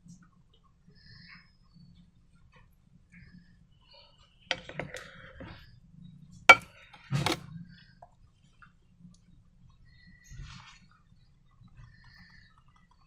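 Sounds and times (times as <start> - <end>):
objects clicking and knocking: 4.5 - 5.6, 6.5 - 7.4.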